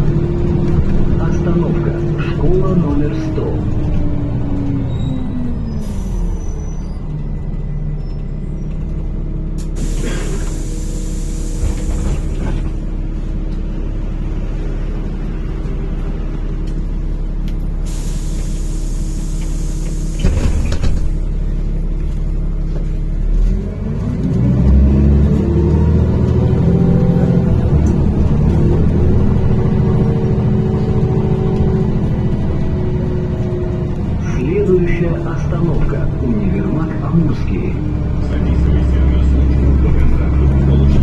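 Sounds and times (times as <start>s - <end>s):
clunks: 0.0s - 10.6s, 19.3s - 41.0s
bus engine idling: 0.0s - 41.0s
compressed air hissing: 9.8s - 12.3s.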